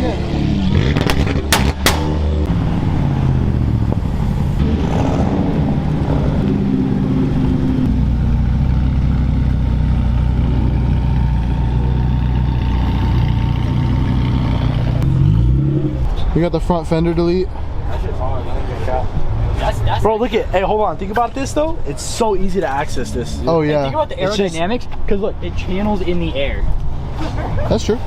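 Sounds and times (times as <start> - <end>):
car engine running: 0.0 - 17.2.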